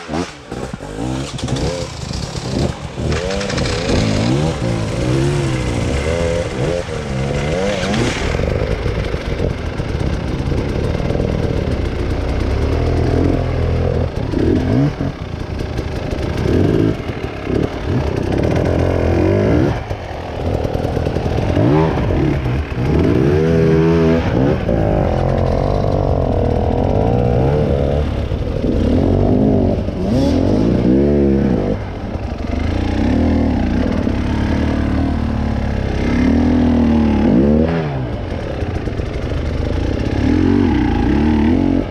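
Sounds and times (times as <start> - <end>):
engine revving under load: 0.0 - 9.8, 16.3 - 41.9.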